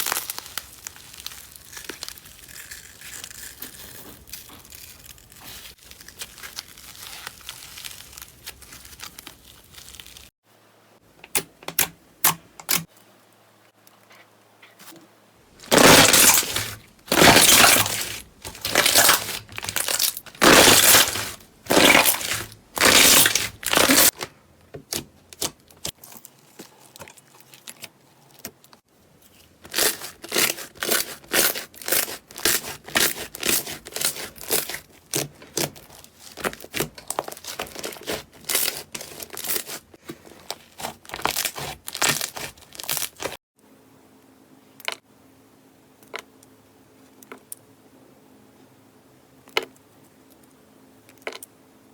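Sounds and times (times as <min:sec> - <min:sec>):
slime squishing by hand: 0:15.6 - 0:28.7, 0:29.4 - 0:43.4.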